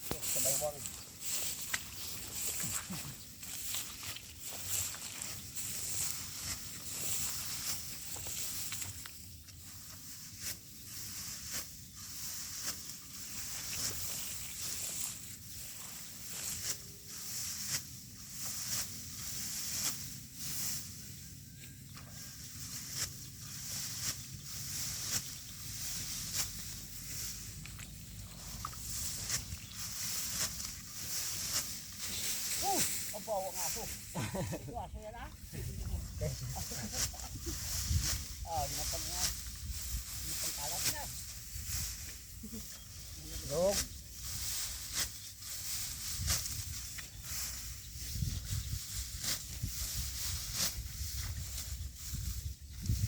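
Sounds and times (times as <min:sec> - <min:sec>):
rice stalks crunching when cut: 0:00.0 - 0:34.6, 0:35.3 - 0:53.0.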